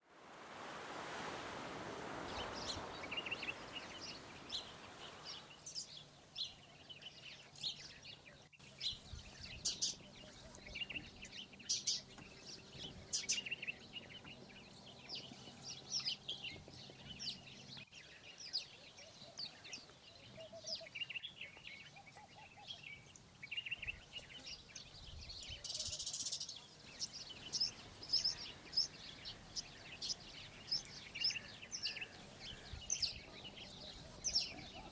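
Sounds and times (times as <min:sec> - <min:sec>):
broad hiss: 0:00.0 - 0:06.0, 0:26.2 - 0:34.9
small birds chirping: 0:02.1 - 0:34.9.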